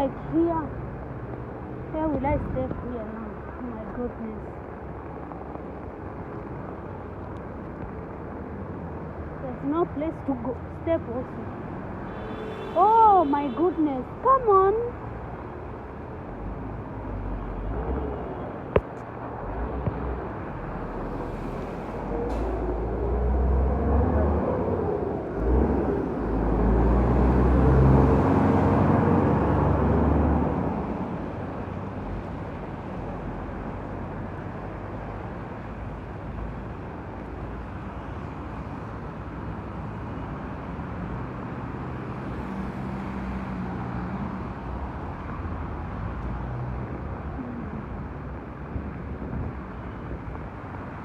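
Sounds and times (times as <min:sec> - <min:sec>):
rain: 0:00.0 - 0:51.0
traffic: 0:00.0 - 0:51.0.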